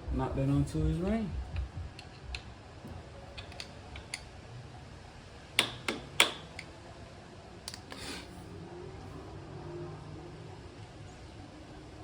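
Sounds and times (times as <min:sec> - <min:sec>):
screwdriver knocking metal: 0:05.6 - 0:06.6
short scrape: 0:07.9 - 0:08.4.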